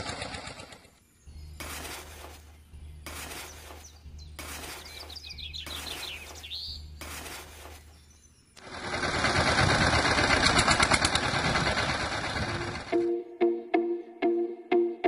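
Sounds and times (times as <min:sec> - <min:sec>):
bird chirping: 0:00.8 - 0:08.6
metal scoop digging in gravel: 0:01.6 - 0:02.4, 0:03.1 - 0:03.8, 0:04.4 - 0:05.2, 0:07.0 - 0:07.8.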